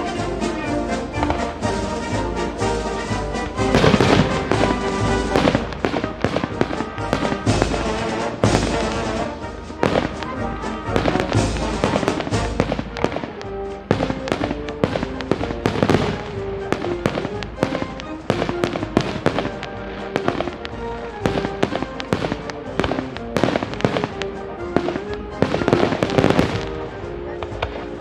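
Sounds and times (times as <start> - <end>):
fireworks bangs and crackles: 0.0 - 28.0
music playing: 0.0 - 28.0.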